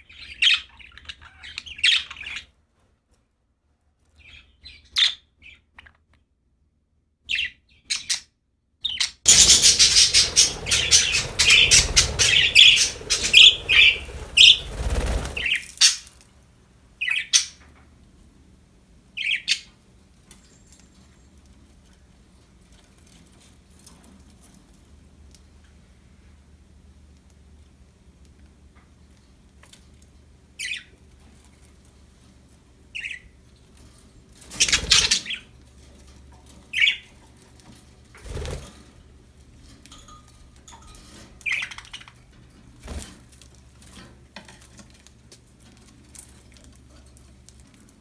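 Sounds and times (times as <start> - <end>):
faint background hum: 0.0 - 48.0
rushing noise: 9.3 - 15.6
budgies chirping: 9.3 - 16.0, 34.6 - 35.5.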